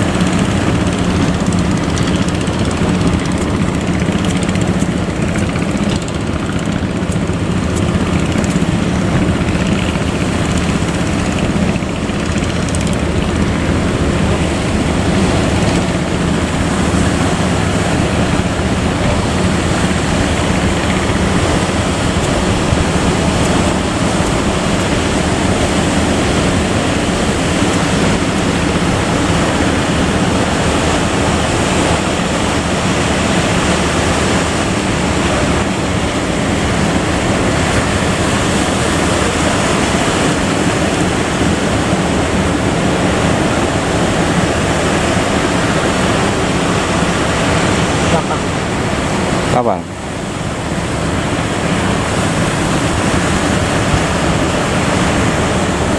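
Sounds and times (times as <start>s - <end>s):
sea waves: 0.0s - 55.9s
wind buffeting microphone: 0.0s - 55.9s.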